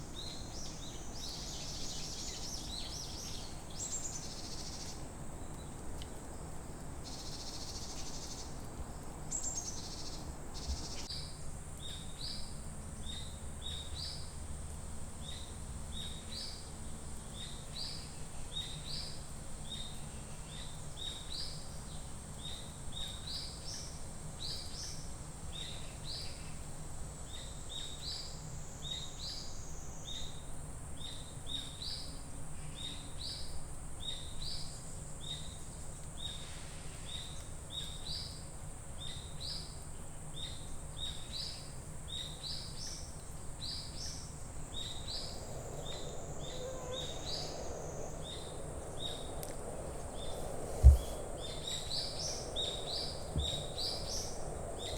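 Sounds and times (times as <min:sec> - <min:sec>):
high insect drone: 0:25.5 - 0:54.9
low background rumble: 0:44.1 - 0:54.9.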